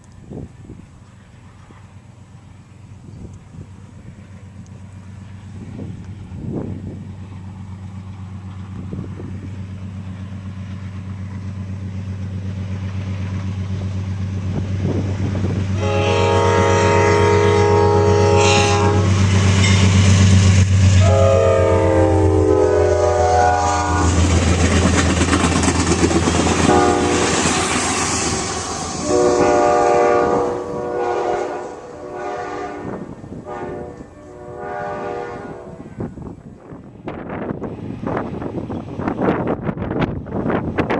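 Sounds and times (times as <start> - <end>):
diesel locomotive engine drone: 0.0 - 40.9
multi-tone air horn blasts: 15.8 - 19.2, 21.0 - 24.2, 26.6 - 27.4, 28.2 - 36.2.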